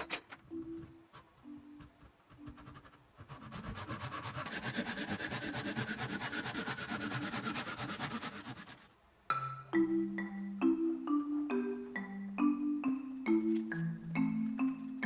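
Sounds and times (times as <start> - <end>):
workshop tool rasping: 0.0 - 0.4, 3.3 - 8.9.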